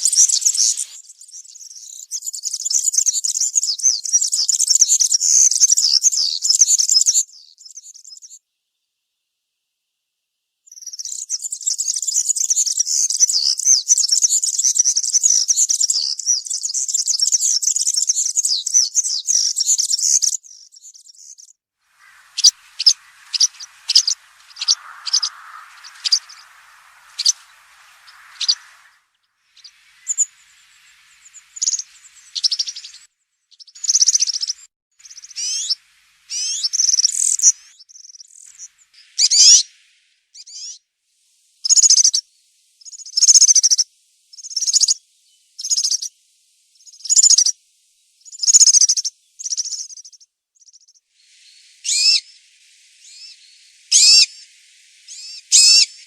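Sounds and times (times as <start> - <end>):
bird singing high jingling song: 18.2 - 29.0, 29.6 - 39.7.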